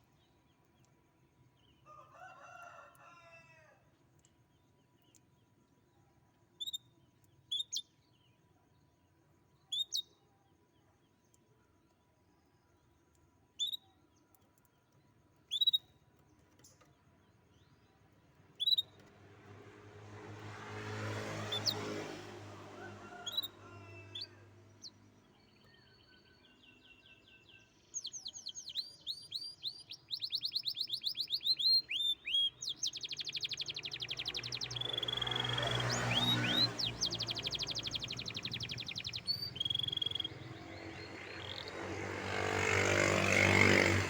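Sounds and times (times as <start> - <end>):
canary chirping and trilling: 15.5 - 16.0, 18.6 - 19.1, 27.8 - 44.0.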